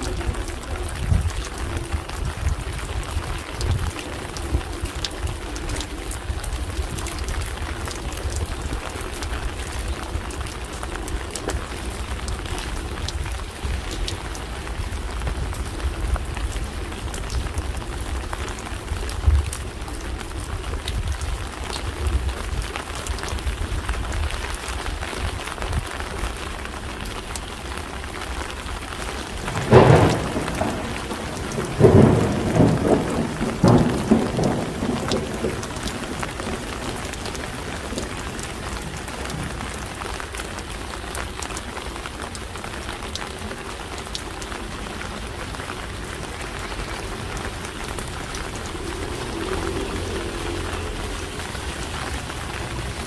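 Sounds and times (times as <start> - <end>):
rain pattering: 0.0 - 53.0
rumbling bursts: 29.4 - 40.0, 45.9 - 53.0.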